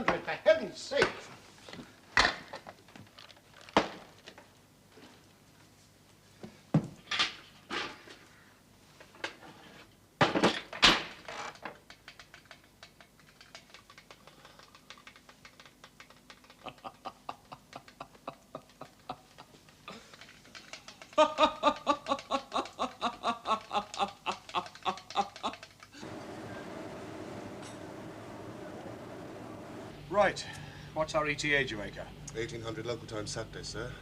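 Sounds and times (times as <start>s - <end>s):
rapid mechanical clicking: 11.5s - 29.9s.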